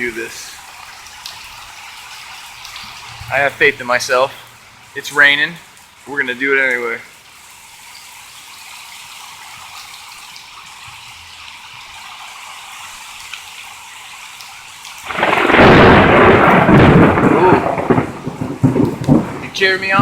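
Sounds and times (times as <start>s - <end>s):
steady rain falling: 0.0s - 20.0s
crackling thunderclap: 15.1s - 20.0s.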